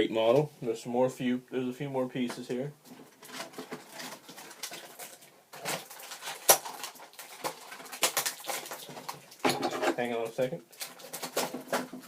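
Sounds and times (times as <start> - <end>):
plastic packaging rustling: 2.3 - 12.0.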